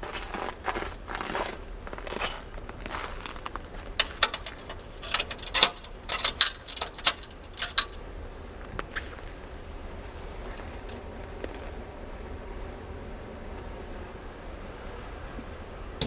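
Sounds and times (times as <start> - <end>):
sharp clicks and metallic clinks: 2.2 - 8.0.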